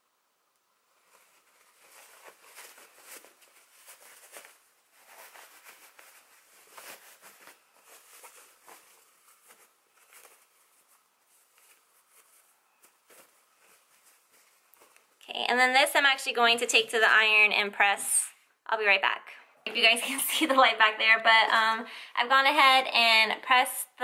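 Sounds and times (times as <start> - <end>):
fabric rustling and swishing: 0.9 - 15.2.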